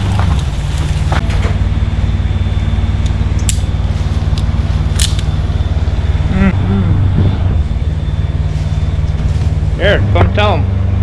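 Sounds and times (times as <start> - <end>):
large engine droning: 0.0 - 11.0.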